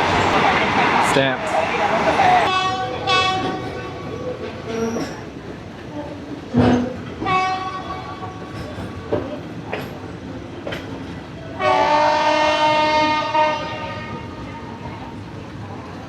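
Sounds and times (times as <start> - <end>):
train wheels knocking on rails: 2.4 - 13.1
train horn blast: 2.5 - 4.1, 7.2 - 8.5, 11.6 - 14.8.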